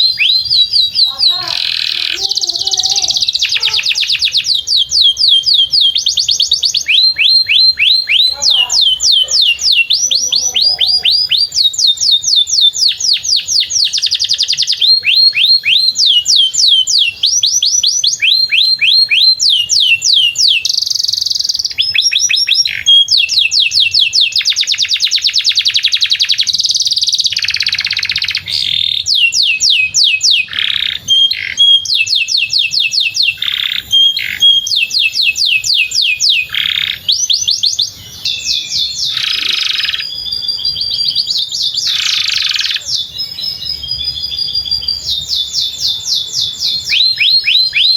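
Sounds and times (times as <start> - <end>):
canary singing trills: 0.0 - 47.9.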